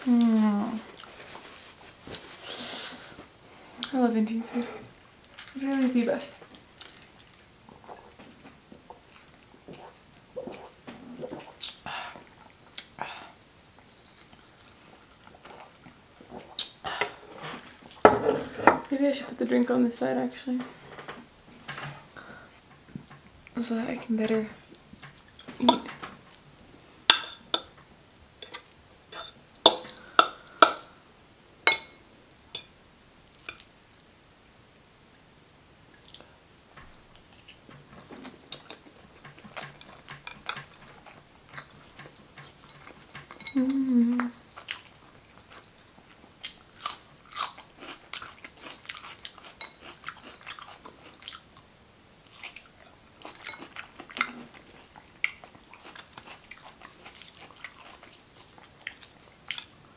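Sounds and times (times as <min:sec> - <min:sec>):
person chewing with crisp crunches: 0:37.1 - 0:59.8.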